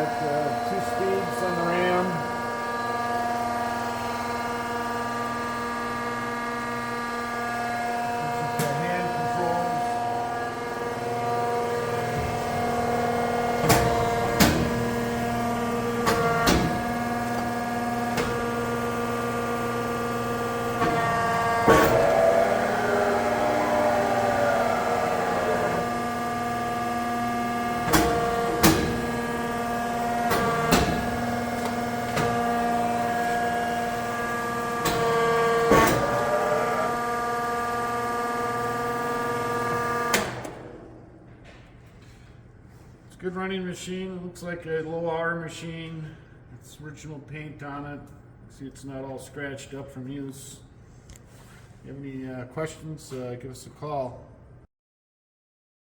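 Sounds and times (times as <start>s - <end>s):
press brake machine hum: 0.0s - 42.2s.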